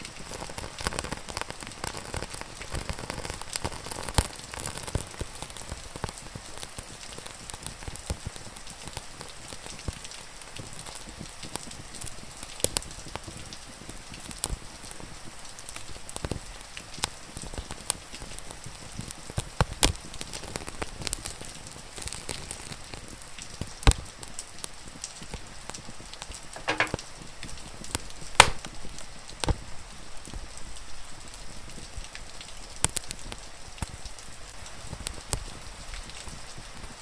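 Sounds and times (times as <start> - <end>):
rain hissing: 0.0 - 37.0
wood fire crackling and popping: 0.0 - 37.0.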